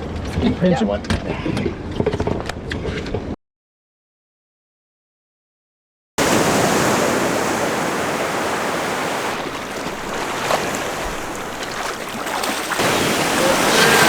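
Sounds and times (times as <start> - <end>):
sea water rushing around boat: 6.2 - 14.0.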